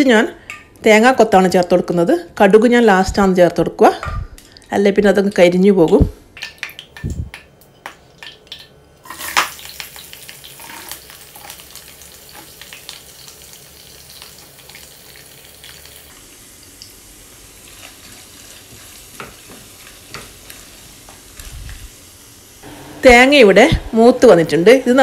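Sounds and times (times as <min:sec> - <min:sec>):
coconut sizzling in hot oil: 0:08.2 - 0:25.0.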